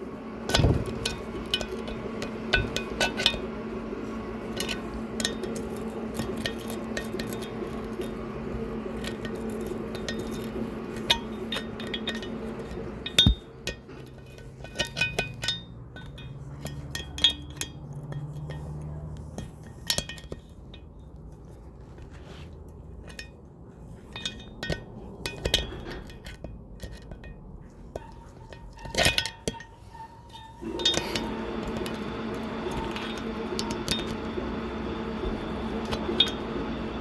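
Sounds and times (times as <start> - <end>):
steady hum: 0.0 - 16.3, 30.3 - 37.0
metal tools clinking on metal: 8.8 - 21.5, 22.9 - 34.2.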